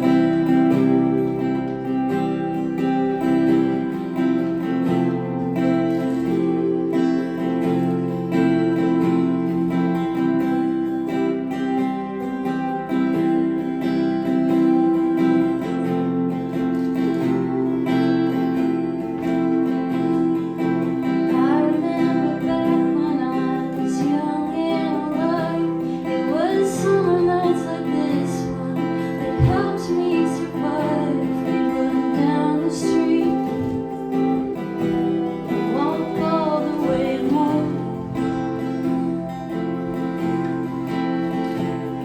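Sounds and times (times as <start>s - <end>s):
acoustic guitar strumming: 0.0s - 42.0s
woman singing: 17.2s - 42.0s.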